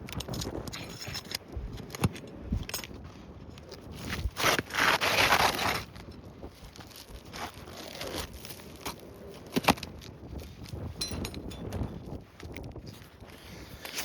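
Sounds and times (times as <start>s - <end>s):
roof shingle scraping and clicking: 3.6s - 10.1s
loud tearing scrape: 4.1s - 6.0s, 7.3s - 8.4s.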